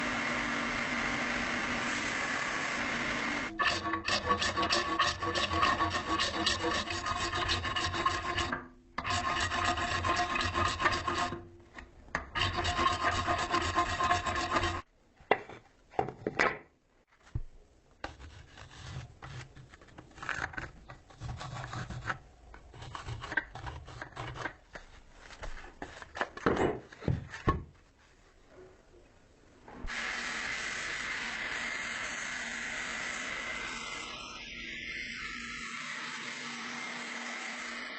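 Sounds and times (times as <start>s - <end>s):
knife scraping with file: 3.5s - 11.5s, 12.3s - 14.9s, 18.0s - 24.6s.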